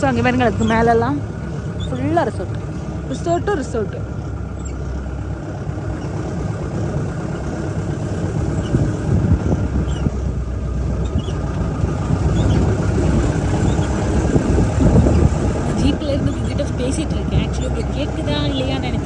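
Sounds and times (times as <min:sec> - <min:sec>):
car engine rumble: 0:00.0 - 0:19.0
road noise: 0:00.0 - 0:19.0.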